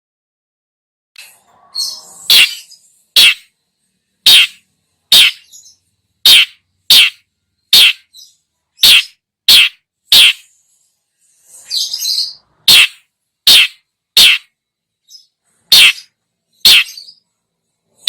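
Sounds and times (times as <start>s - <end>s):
bird twittering: 1.8s - 3.5s, 4.3s - 10.5s, 11.7s - 14.5s, 15.1s - 17.2s
shrike scratchy calls: 1.9s - 3.5s, 4.3s - 5.4s, 6.3s - 7.2s, 7.8s - 8.0s, 8.8s - 10.5s, 12.7s - 14.5s, 15.7s - 17.0s.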